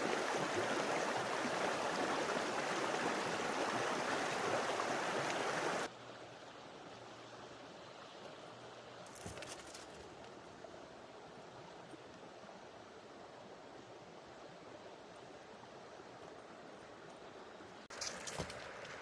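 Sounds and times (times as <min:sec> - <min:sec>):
creek rushing: 0:00.0 - 0:09.1.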